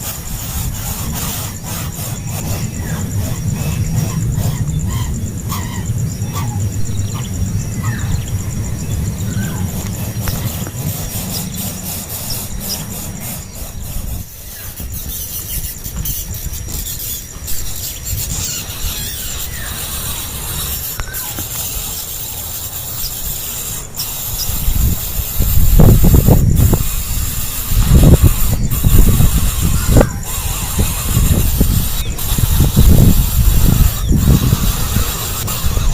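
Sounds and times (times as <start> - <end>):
low rumbling handling noise: 0.0 - 15.2
nestlings begging with squeaky calls: 0.1 - 35.9.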